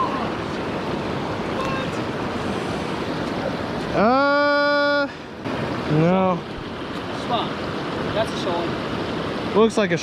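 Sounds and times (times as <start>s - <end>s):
creek water rushing over rocks: 0.0s - 10.0s.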